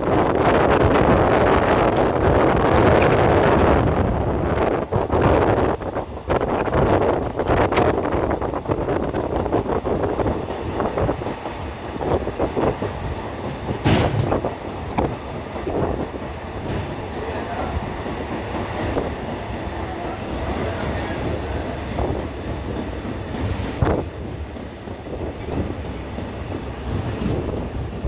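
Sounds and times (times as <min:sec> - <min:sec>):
passenger train running on track: 0:00.0 - 0:28.0
sharp knock: 0:13.7 - 0:14.5.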